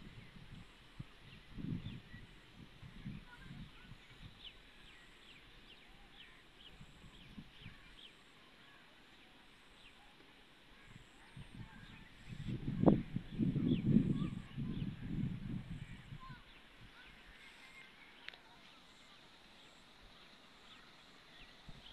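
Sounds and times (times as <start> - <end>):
faint bird chirps: 10.8 - 21.9.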